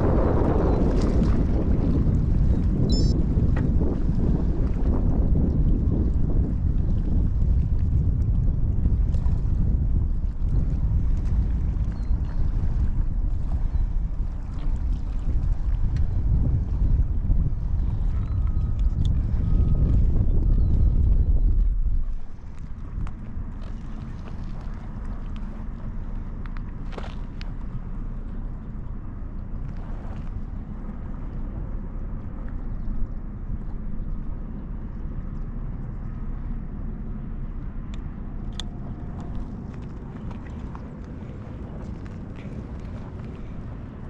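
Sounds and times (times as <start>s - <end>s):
wind buffeting microphone: 0.0s - 44.0s
faint high thin tone: 2.9s - 3.2s.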